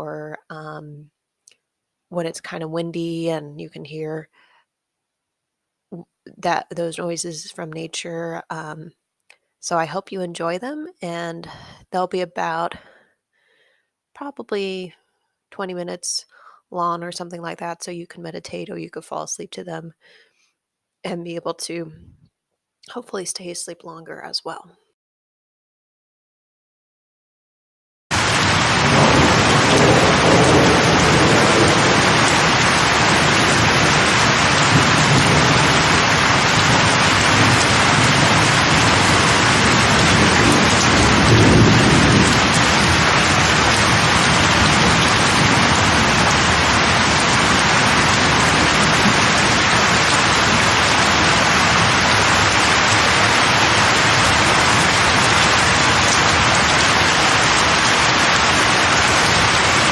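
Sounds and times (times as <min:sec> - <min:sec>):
steady rain falling: 0:28.1 - 0:59.9.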